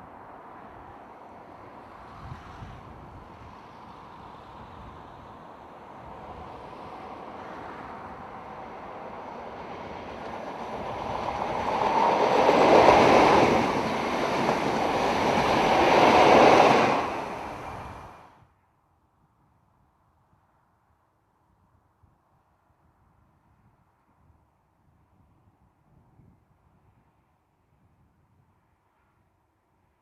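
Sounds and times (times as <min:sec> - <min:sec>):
diesel locomotive passing: 0:00.1 - 0:18.3.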